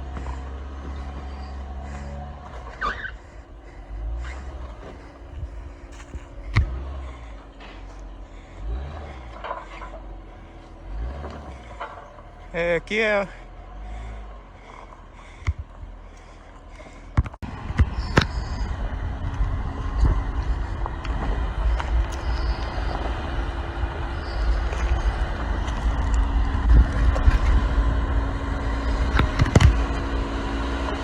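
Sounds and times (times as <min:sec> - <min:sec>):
off-road vehicle engine rumbling: 0:00.0 - 0:31.0
sharp knocks and clunks: 0:04.5 - 0:08.1, 0:14.7 - 0:18.6.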